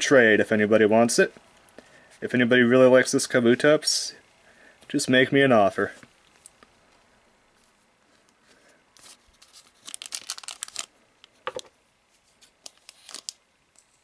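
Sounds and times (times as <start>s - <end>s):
plastic wrapper tearing and crinkling: 9.0s - 11.4s, 12.6s - 13.4s.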